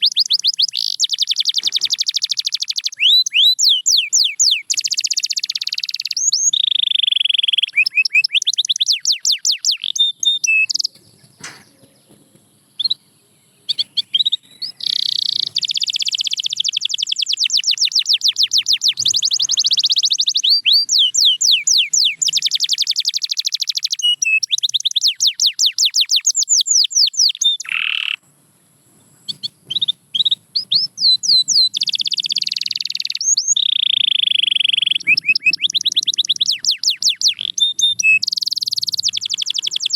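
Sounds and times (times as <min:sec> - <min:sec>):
canary singing: 0:00.0 - 0:28.2, 0:29.2 - 0:39.9.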